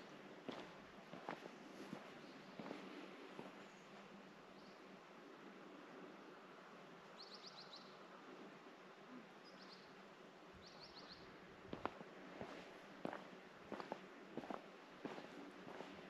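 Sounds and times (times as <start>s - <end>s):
background hiss: 0.0s - 16.0s
faint bird chirping: 1.5s - 5.0s, 7.1s - 8.2s, 9.1s - 11.4s.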